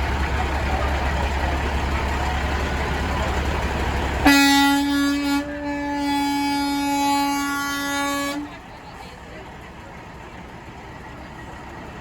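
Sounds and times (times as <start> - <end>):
passing truck traffic rumble: 0.0 - 12.0
truck air horn: 4.2 - 8.6.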